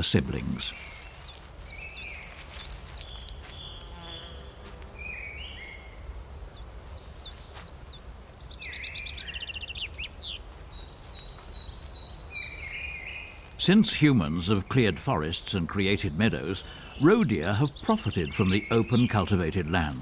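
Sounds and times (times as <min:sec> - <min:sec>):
insects chirping: 0:00.0 - 0:19.4
birds singing: 0:00.0 - 0:20.0
bird trill: 0:00.6 - 0:13.5.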